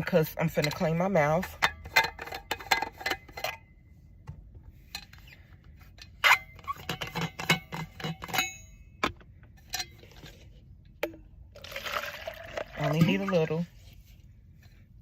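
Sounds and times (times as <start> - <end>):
thermos clicks and cup clinks: 0.0 - 3.7, 5.9 - 13.7.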